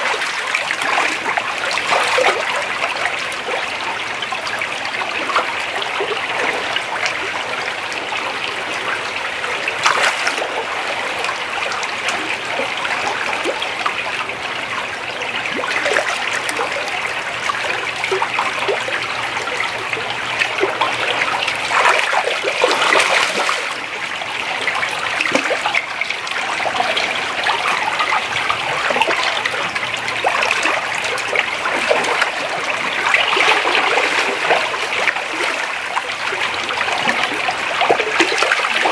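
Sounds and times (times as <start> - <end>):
creek water burbling over rocks: 0.0 - 38.9.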